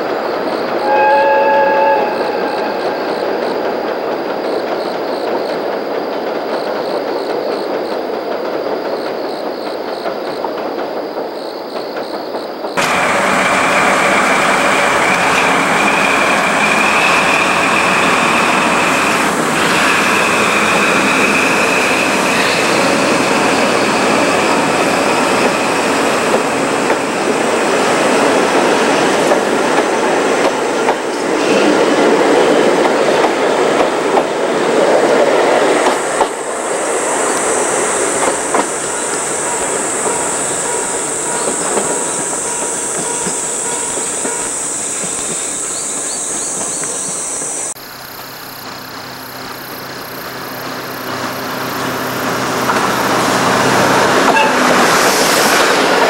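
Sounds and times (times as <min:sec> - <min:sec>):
distant train rumble: 0:00.0 - 0:56.0
train wheels rumbling and clattering: 0:01.6 - 0:56.0
high wheel squeal: 0:12.8 - 0:26.7, 0:37.2 - 0:47.8, 0:50.9 - 0:56.0.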